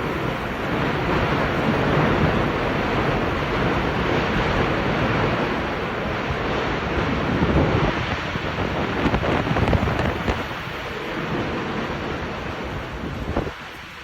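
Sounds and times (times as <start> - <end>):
landslide roar of sliding earth: 0.0 - 14.0.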